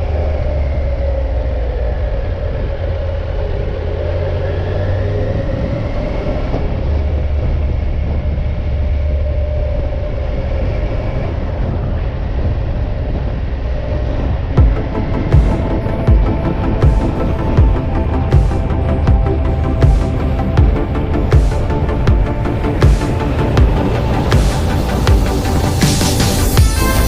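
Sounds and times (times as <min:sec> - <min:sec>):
wind and road noise: 0:00.0 - 0:27.0
motorcycle engine: 0:14.6 - 0:27.0.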